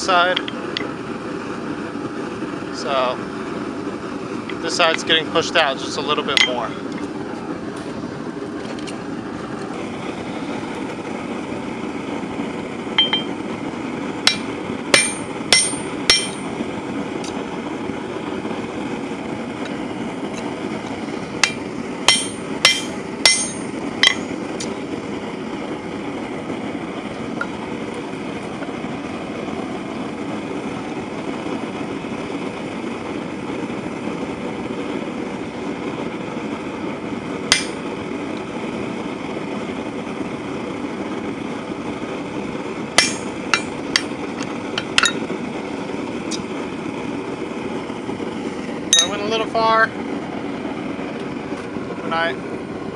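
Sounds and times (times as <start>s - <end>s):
hammer blows on hot steel: 14.2s - 16.6s, 21.4s - 24.8s, 37.5s - 37.9s, 42.9s - 44.2s.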